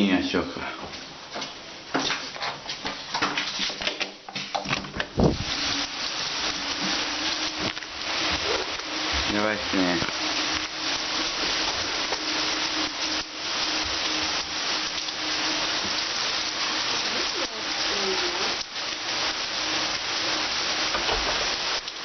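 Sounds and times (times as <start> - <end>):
heavy rain pouring: 4.9 - 22.0.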